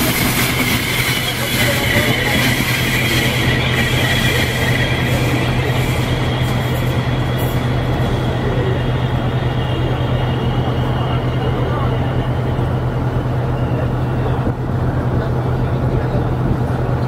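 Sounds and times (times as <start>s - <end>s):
train wheels squealing: 0.0s - 14.4s.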